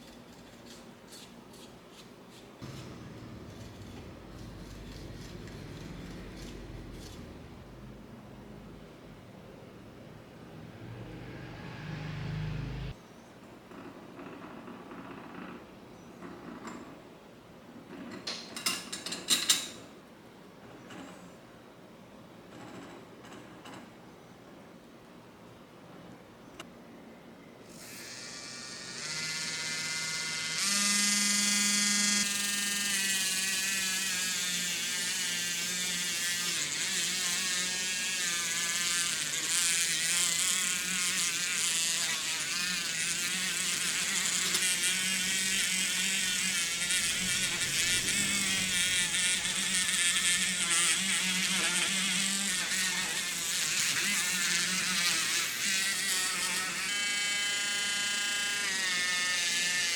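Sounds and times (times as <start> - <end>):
electric power tool running: 2.6 - 7.6, 27.7 - 59.9.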